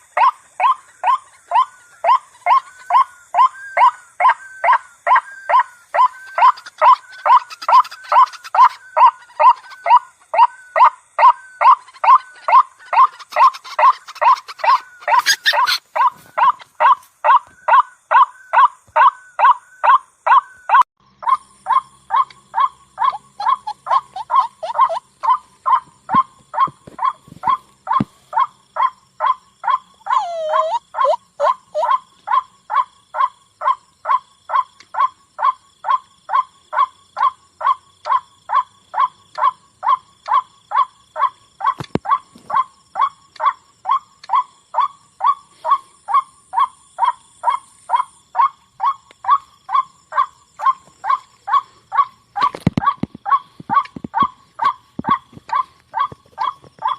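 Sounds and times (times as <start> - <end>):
waterhen calling: 0.0 - 18.2, 21.7 - 28.1, 30.0 - 32.0.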